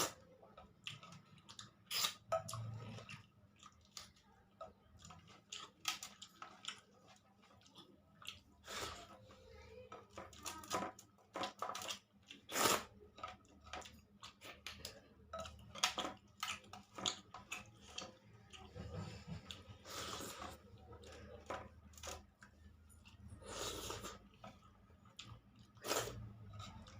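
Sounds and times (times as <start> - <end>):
person chewing food: 0.0 - 9.3, 10.1 - 26.9.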